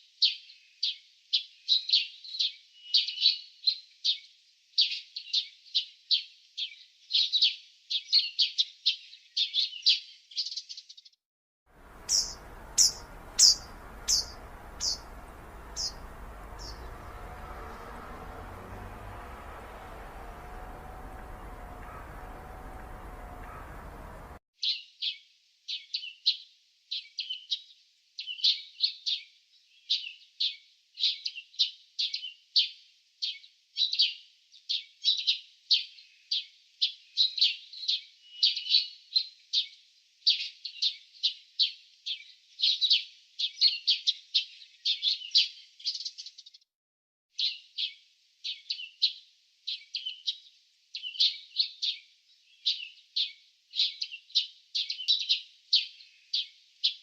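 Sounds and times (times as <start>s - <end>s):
bird chirping: 11.8s - 24.4s.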